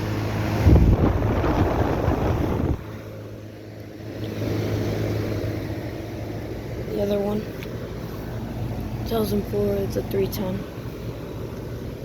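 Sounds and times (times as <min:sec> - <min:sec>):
compressor hum: 0:00.0 - 0:12.0
condenser fan air noise: 0:00.0 - 0:12.0.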